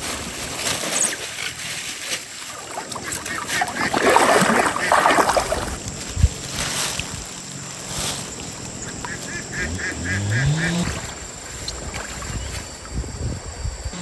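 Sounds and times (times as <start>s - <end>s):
water splashing in a stream: 0.0s - 7.8s, 10.7s - 12.8s.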